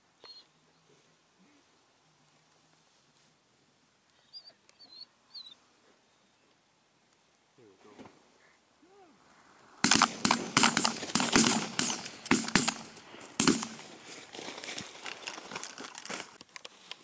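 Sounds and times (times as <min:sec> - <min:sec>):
crinkling rustle: 0:10.0 - 0:17.0.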